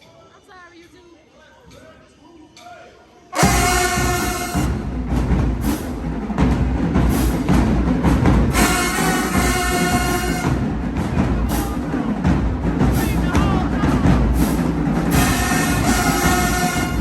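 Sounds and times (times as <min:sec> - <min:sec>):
horns holding a chord: 0:03.4 - 0:05.2, 0:08.5 - 0:11.0, 0:15.1 - 0:17.0
drumline with bass drums: 0:03.4 - 0:17.0.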